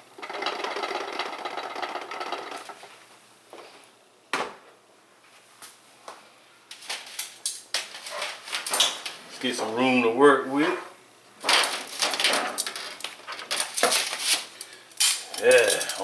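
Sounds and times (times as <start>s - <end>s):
pressure cooker rattling rush: 0.0s - 2.9s.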